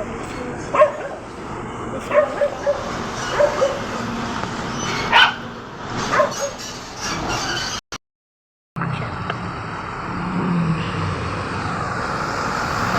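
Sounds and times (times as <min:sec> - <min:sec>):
road traffic noise: 0:00.0 - 0:07.8, 0:08.8 - 0:12.9
dog barking in yelps: 0:00.7 - 0:01.2, 0:02.0 - 0:03.9, 0:05.0 - 0:05.5, 0:06.1 - 0:06.7.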